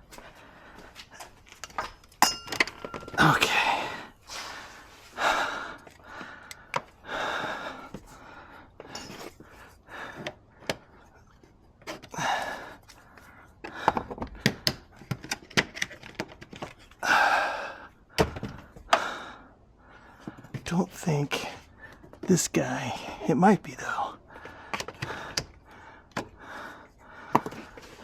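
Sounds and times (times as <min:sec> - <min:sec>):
heavy breaths of effort: 0:00.0 - 0:01.4, 0:03.0 - 0:11.3, 0:12.0 - 0:15.0, 0:16.9 - 0:20.6, 0:22.9 - 0:28.0.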